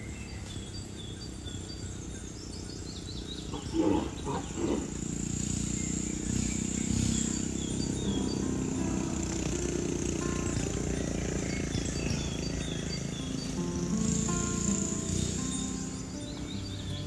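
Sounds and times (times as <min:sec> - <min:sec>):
cattle lowing: 0:03.4 - 0:05.5.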